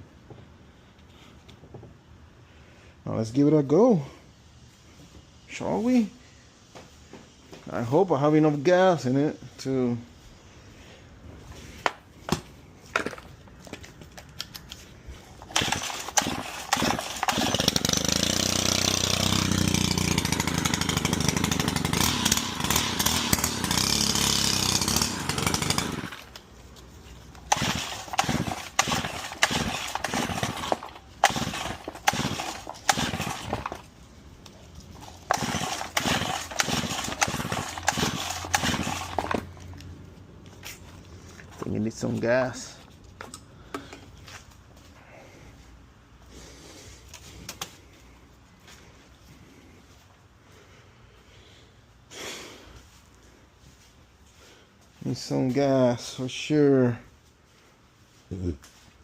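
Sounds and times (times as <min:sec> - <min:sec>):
small engine running: 0:15.4 - 0:26.5, 0:27.3 - 0:33.9, 0:35.0 - 0:39.8
starter cord pulls: 0:15.4 - 0:26.5, 0:27.3 - 0:33.9, 0:35.0 - 0:39.8.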